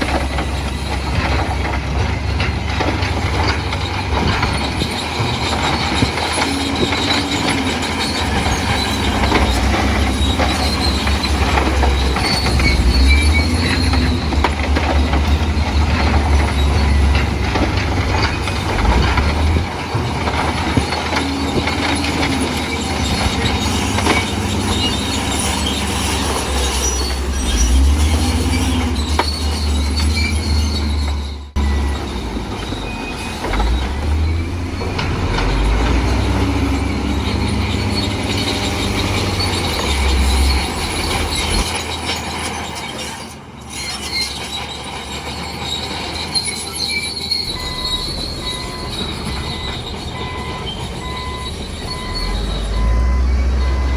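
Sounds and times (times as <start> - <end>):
crawler tracks clanking and squealing: 0.0 - 53.9
diesel engine under load: 0.0 - 53.9.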